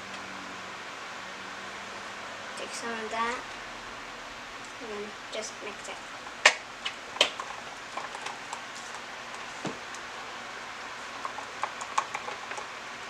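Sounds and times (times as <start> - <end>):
small clicks and ticks: 11.2 - 12.8.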